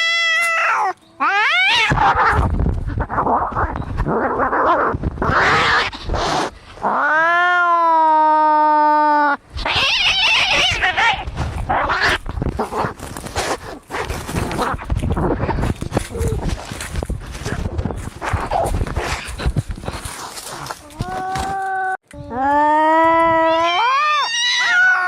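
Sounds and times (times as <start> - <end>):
cat yowling: 0.0 - 2.4, 23.3 - 25.0
cats screeching: 0.0 - 2.4, 9.6 - 12.2, 23.3 - 25.0.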